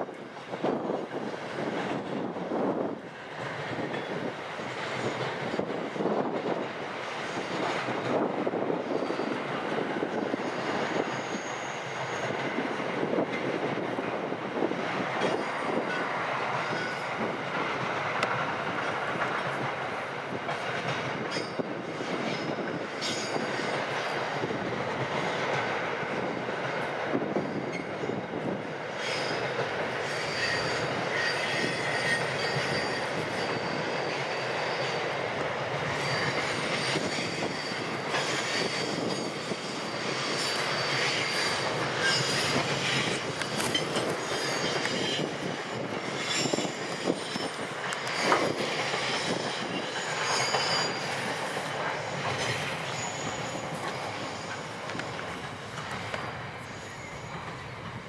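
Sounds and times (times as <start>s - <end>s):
freight train rumbling past: 0.0s - 58.0s
wheel squeal: 10.3s - 12.4s, 28.9s - 35.2s, 35.9s - 57.8s.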